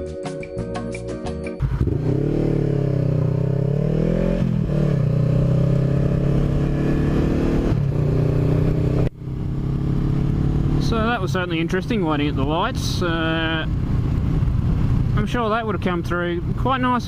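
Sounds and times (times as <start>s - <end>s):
background music: 0.0s - 2.1s
motorcycle engine revving: 1.6s - 15.8s.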